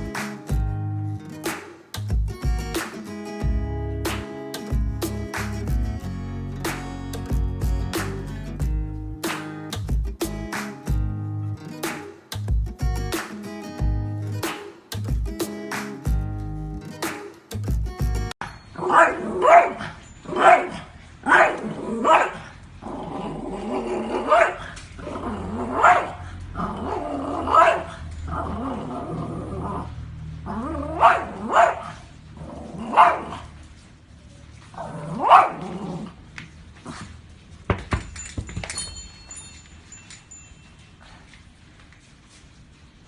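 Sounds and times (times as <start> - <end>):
dog barking: 18.8 - 22.5, 24.0 - 24.6, 25.6 - 27.9, 30.9 - 32.1, 32.9 - 33.4, 35.2 - 35.6
dog growling: 22.8 - 31.5.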